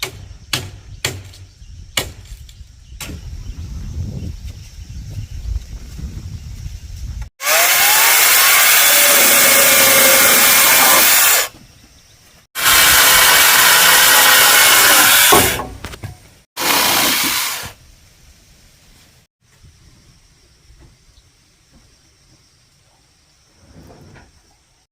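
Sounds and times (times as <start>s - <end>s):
power tool cutting: 7.4s - 11.5s, 12.6s - 15.6s, 16.6s - 17.7s.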